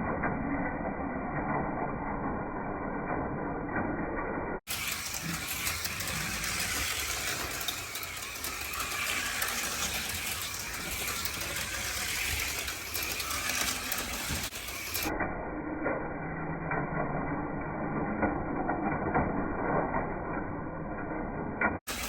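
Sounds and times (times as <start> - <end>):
small electric motors whirring: 4.7 - 15.2
light mechanical rattle: 4.7 - 20.6, 21.6 - 22.0.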